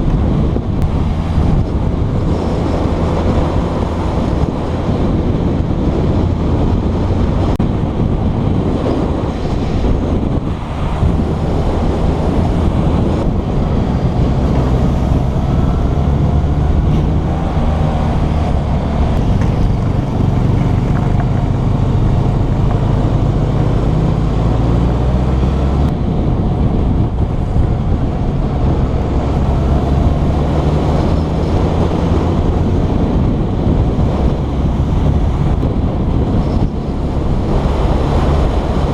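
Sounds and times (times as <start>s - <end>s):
motorcycle engine running: 0.0s - 24.5s
wind noise on microphone: 0.0s - 38.9s.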